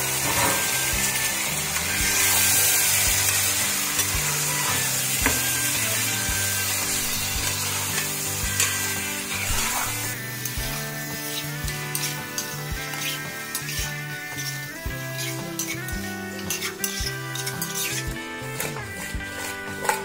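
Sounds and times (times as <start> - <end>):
chicken sizzling in hot oil: 0.0 - 20.0
steel spoon clinking on pot: 15.2 - 18.8.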